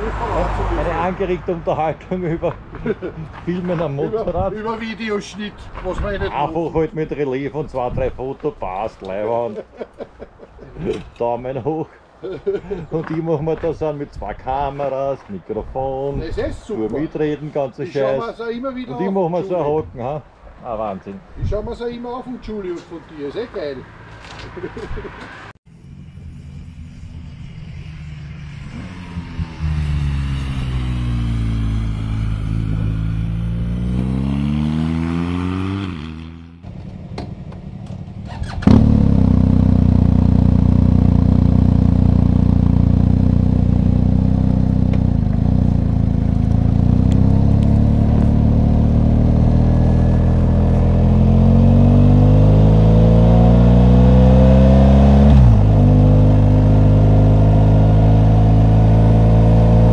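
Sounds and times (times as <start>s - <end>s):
motorcycle engine running: 25.8s - 59.9s.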